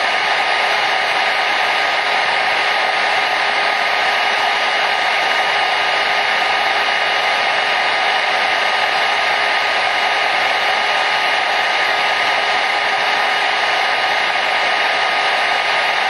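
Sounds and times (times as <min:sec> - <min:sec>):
hair dryer running: 0:00.0 - 0:16.0.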